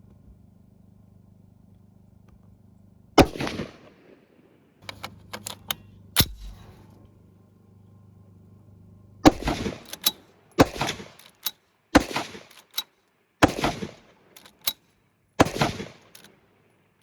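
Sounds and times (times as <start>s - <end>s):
rifle shots: 3.2s - 3.8s, 4.8s - 6.8s, 9.3s - 14.8s, 15.4s - 16.3s
sharp click: 4.8s - 6.8s, 9.3s - 11.6s, 12.5s - 12.9s, 14.4s - 14.8s, 15.4s - 16.3s.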